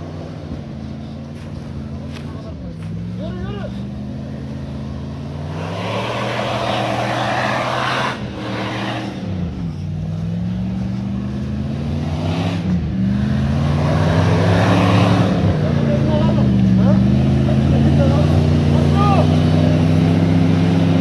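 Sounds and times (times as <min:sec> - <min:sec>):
engine revving hard: 0:03.1 - 0:21.0.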